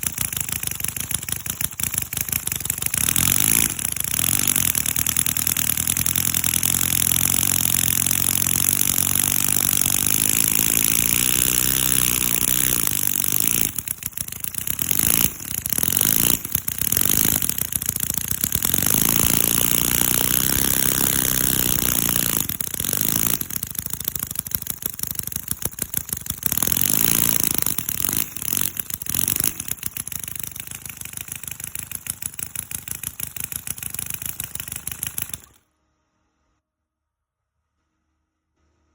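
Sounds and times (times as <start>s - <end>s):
small engine revving: 0.0s - 35.6s.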